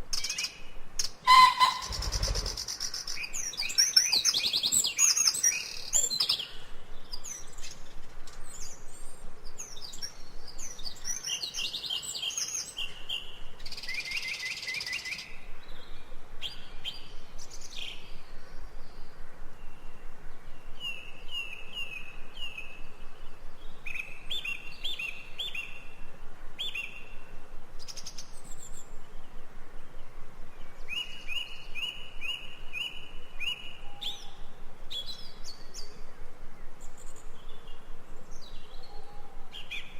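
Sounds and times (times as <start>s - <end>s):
birds singing and chirping: 0.2s - 18.9s.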